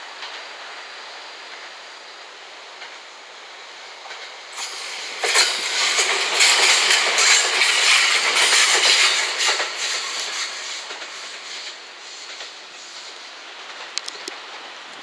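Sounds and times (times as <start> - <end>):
electric train passing: 0.6 - 14.0
wheels clattering over rail joints: 4.1 - 12.6.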